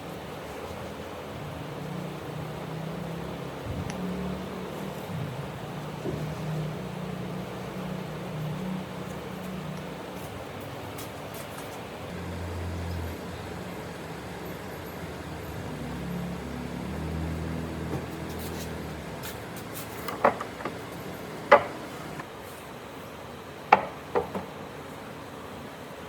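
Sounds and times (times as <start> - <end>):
low mechanical hum: 0.0 - 26.0
wood knocking against wood: 19.8 - 22.2, 23.7 - 24.6.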